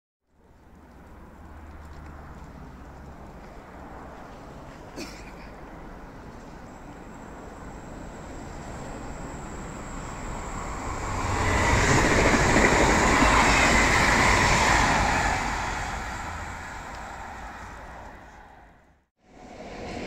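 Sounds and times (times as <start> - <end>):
train rumble and rail noise: 0.5 - 20.0.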